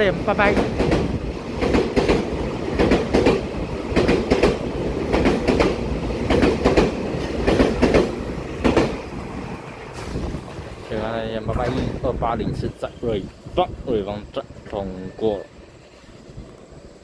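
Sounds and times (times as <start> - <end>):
train cars rumbling: 0.0 - 17.0
wheels clicking over rail joints: 0.4 - 12.1.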